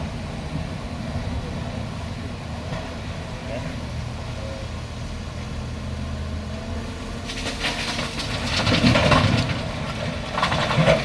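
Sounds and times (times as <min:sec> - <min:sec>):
excavator diesel engine running: 0:00.0 - 0:11.0
rapid clattering and rattling: 0:07.2 - 0:11.0.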